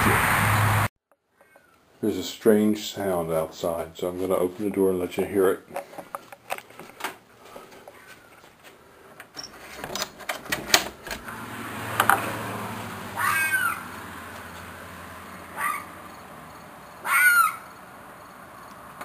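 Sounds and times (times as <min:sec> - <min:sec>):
animal screeching cry: 0:13.2 - 0:13.9, 0:15.5 - 0:16.0, 0:17.0 - 0:17.8.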